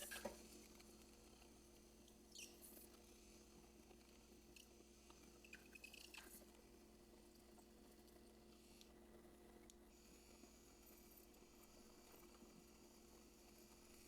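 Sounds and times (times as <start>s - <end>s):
faint steady hum: 0.0s - 14.0s
faint squeaks: 2.2s - 2.9s.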